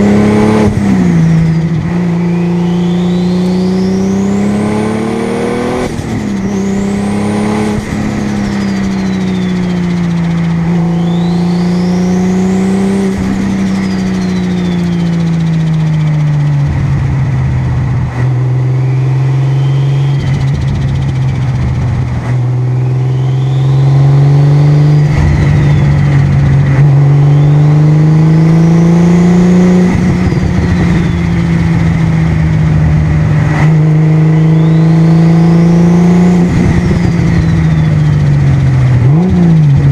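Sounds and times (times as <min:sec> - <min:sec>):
sports car engine cruising: 0:00.0 - 0:39.9
faint high whistle: 0:01.1 - 0:04.3, 0:08.4 - 0:15.6, 0:18.7 - 0:20.7, 0:22.6 - 0:26.4, 0:27.2 - 0:28.0, 0:30.0 - 0:31.7, 0:34.4 - 0:35.2, 0:37.0 - 0:38.3.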